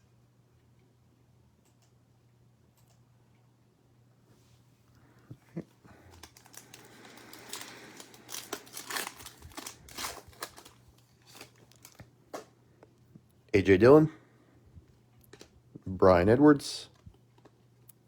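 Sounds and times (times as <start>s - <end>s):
cards being handled: 5.9s - 12.6s
wrapper tearing and crinkling: 6.1s - 12.0s.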